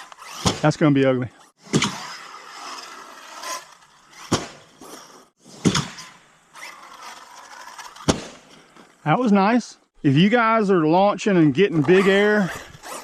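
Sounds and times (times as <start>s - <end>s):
electric motor whining: 0.0s - 0.6s
toy truck hitting the ground: 0.0s - 0.6s, 1.7s - 2.8s, 3.4s - 8.6s.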